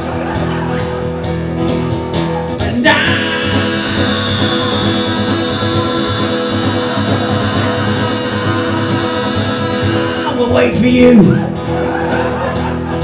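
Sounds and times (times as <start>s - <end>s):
guitar strummed: 0.0s - 13.0s
person singing: 2.6s - 11.1s.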